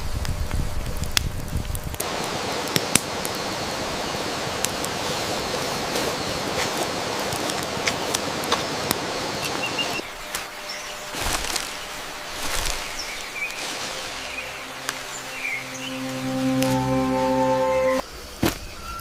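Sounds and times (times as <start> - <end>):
flowing water rushing: 13.4 - 18.0.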